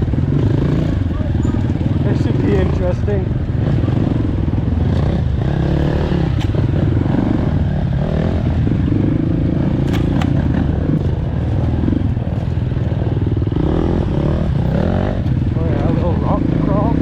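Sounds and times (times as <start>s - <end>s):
dirt bike engine revving: 0.0s - 17.0s
stones clacking against bike: 9.8s - 12.8s.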